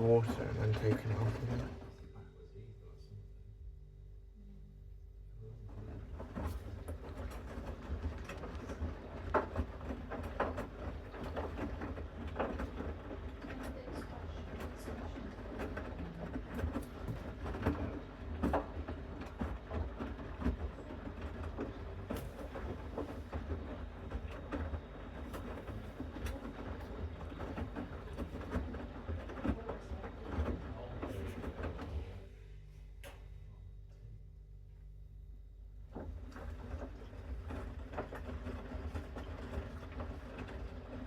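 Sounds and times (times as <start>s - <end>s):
washing machine motor rumble: 0.0s - 41.0s
wet laundry tumbling and sloshing: 35.9s - 41.0s.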